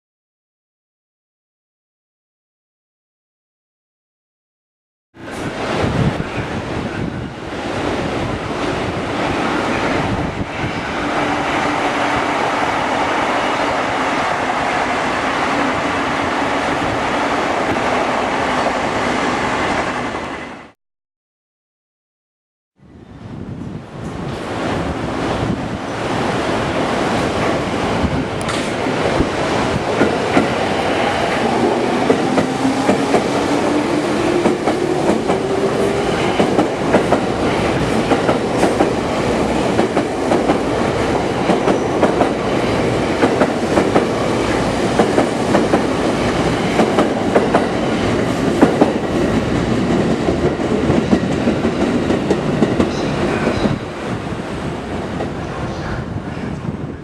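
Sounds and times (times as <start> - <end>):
train wheels clattering on rail joints: 28.4 - 29.2, 44.8 - 53.8.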